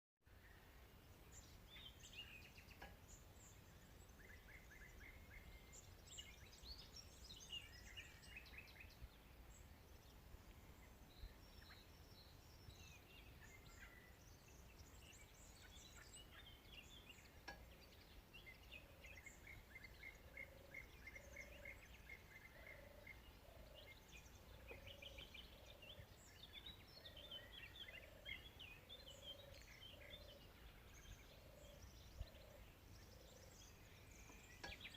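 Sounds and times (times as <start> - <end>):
birds chirping and trilling: 0.3 - 34.9.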